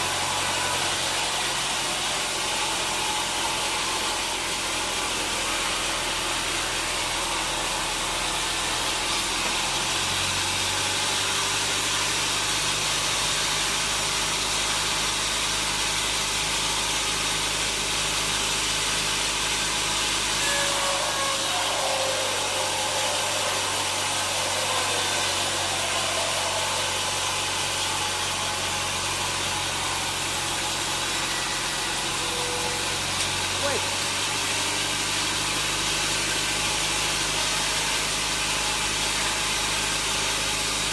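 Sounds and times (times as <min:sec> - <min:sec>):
sawmill machinery whirring hiss: 0:00.0 - 0:40.9
low motor hum: 0:18.6 - 0:34.0.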